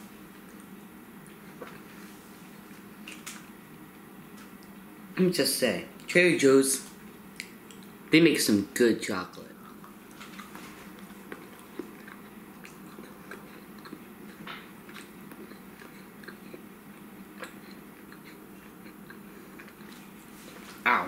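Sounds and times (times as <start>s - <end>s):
low background hum: 0.0s - 21.0s
person chewing chocolate: 9.5s - 20.4s.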